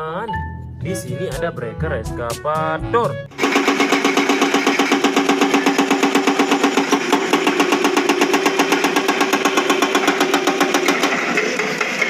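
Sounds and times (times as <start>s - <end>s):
toy excavator rapid rattling pulse: 3.4s - 12.0s.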